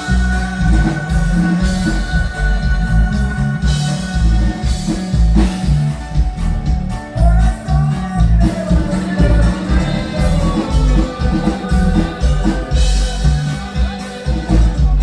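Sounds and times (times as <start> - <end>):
band music with bass and drums: 0.0 - 15.0.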